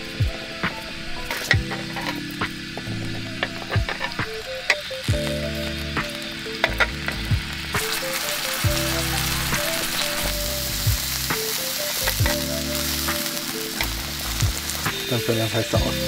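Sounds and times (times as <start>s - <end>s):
food sizzling in a pan: 0.0s - 16.0s
utensils clicking against pan: 0.8s - 5.4s.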